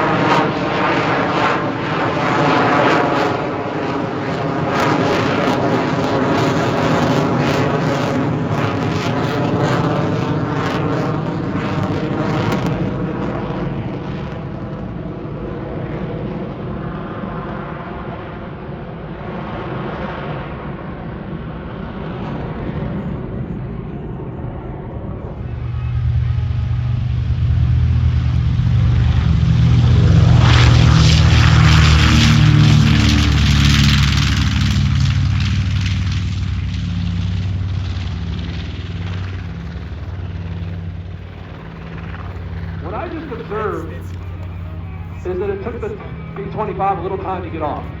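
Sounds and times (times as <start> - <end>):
airplane engine drone: 0.0 - 48.0
crackling exhaust rasp: 25.4 - 46.6.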